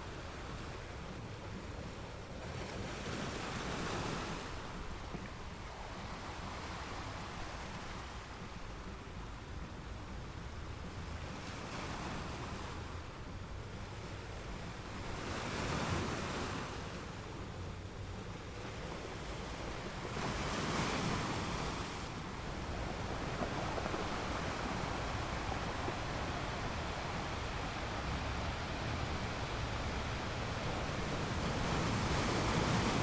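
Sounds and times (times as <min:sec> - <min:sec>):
waves breaking: 0:13.8 - 0:33.0
sea waves washing in: 0:16.1 - 0:33.0.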